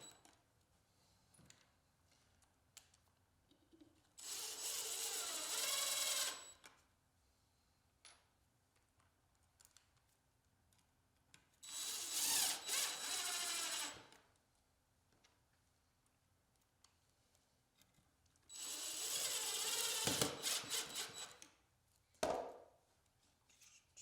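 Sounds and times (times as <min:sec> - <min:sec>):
power drill running: 0:04.2 - 0:06.4, 0:11.7 - 0:14.1, 0:18.5 - 0:21.4.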